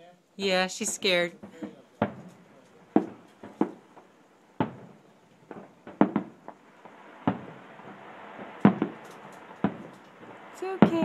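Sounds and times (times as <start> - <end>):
fireworks bangs: 0.4 - 11.0.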